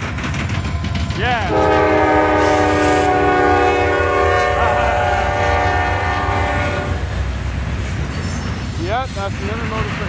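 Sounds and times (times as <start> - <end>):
diesel locomotives rumbling: 0.0 - 10.0
locomotive horn blast: 1.5 - 7.2.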